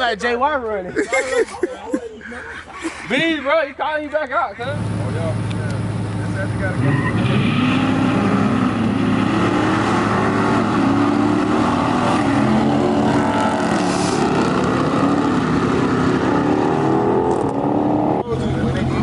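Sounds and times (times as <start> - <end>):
car engine revving: 4.7 - 19.0.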